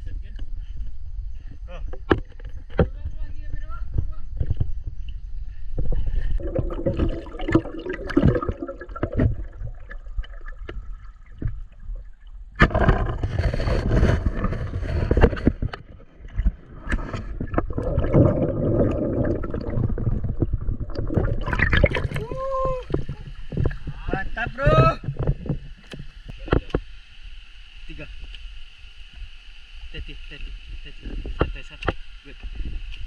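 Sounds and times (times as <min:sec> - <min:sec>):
knocks underwater: 0:05.8 - 0:26.8
water gurgling and splashing: 0:05.9 - 0:26.7.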